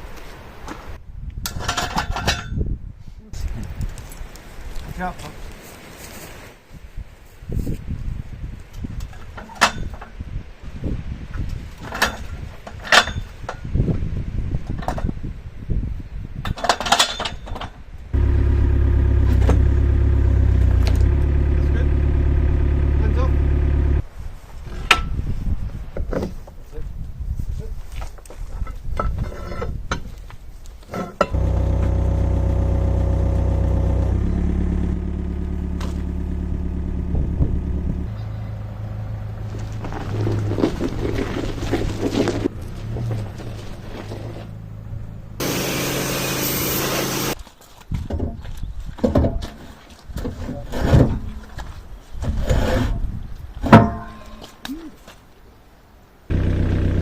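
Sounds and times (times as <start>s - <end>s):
excavator diesel engine idling: 18.2s - 24.0s, 31.4s - 38.8s, 45.4s - 47.4s, 56.3s - 57.0s
metal knocks and clanks: 49.0s - 49.6s, 53.6s - 54.5s.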